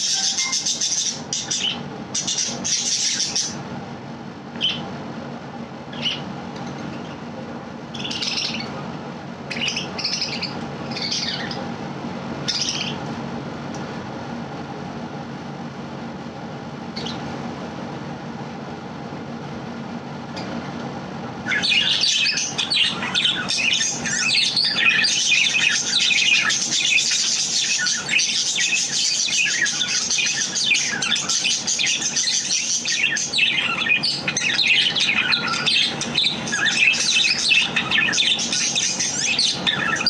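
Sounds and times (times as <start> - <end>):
budgerigar chirping and squawking: 0.0 - 3.6, 5.9 - 6.3, 7.9 - 8.8, 9.5 - 11.6, 12.5 - 13.0, 21.5 - 40.0
low background hum: 0.0 - 40.0.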